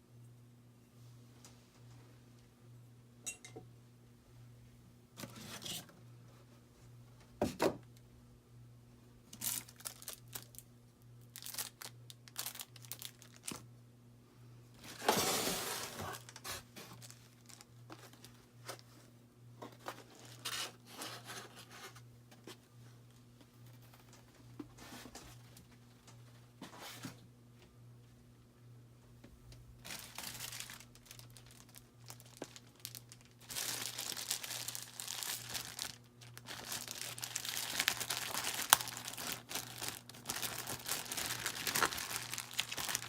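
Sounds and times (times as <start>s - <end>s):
paper and cardboard rustling: 14.8s - 19.0s, 19.6s - 22.6s.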